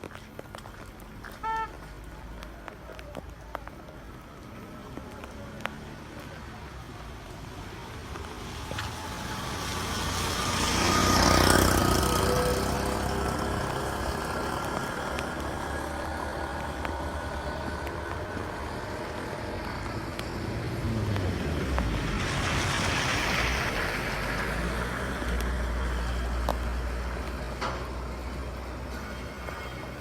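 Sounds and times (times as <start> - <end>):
traffic engine rumble: 0.0 - 30.0
vehicle passing close by: 7.8 - 27.4.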